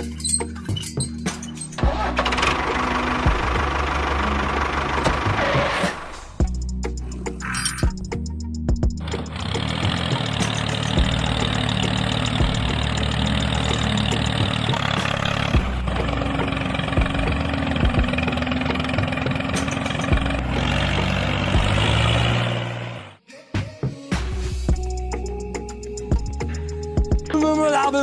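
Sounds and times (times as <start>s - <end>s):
tractor engine idling: 0.0s - 8.0s, 9.0s - 23.2s.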